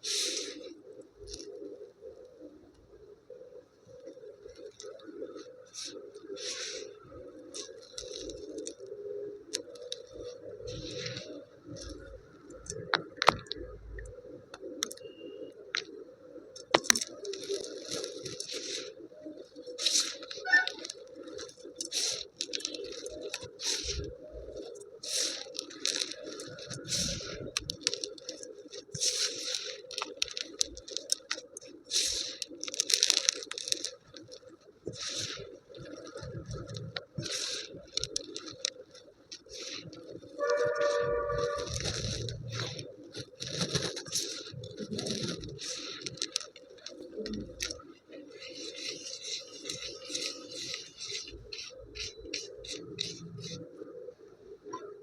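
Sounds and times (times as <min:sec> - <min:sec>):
small clicks and taps: 0:16.6 - 0:18.6
handling rustling: 0:16.6 - 0:53.7.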